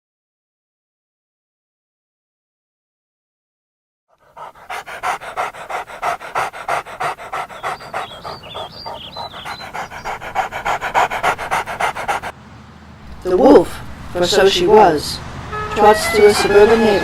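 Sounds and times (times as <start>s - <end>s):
dog panting: 4.1s - 12.3s, 15.9s - 17.0s.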